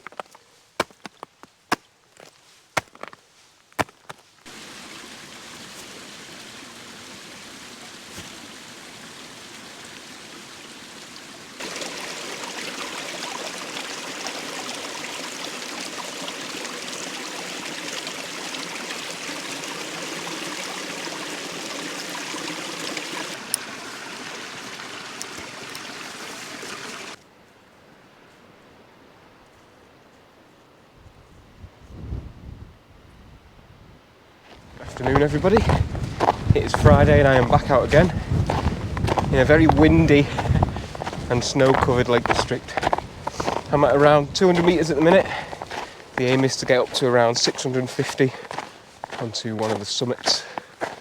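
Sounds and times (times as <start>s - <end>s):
stream water rushing: 4.5s - 27.2s, 34.5s - 51.0s.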